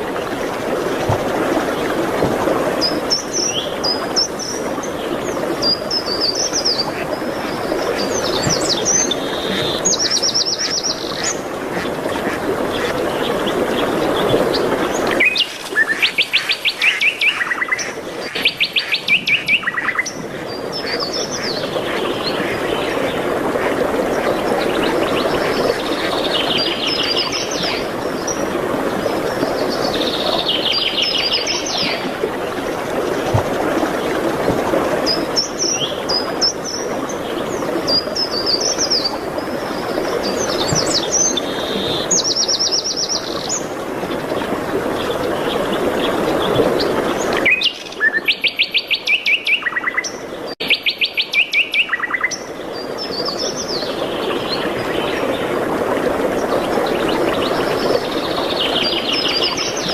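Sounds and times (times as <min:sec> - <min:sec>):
songbirds trilling and chirping: 0:02.7 - 0:23.3.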